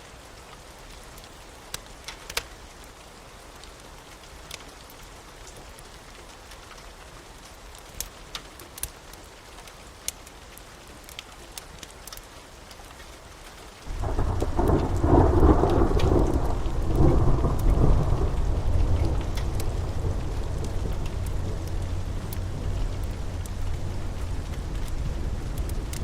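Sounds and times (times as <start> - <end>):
rain falling: 0.0 - 26.0
thunder clap and rumble: 13.9 - 26.0.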